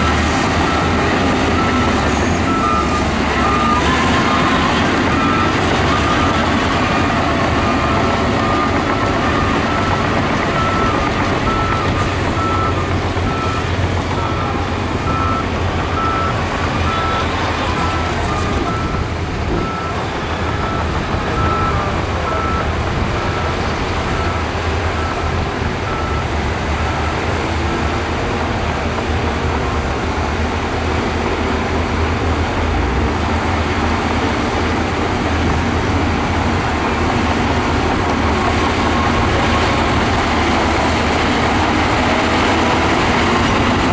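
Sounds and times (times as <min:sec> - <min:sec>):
reversing alarm beeping: 0:00.0 - 0:27.2, 0:34.3 - 0:43.9
heavy diesel machinery running: 0:00.0 - 0:43.9.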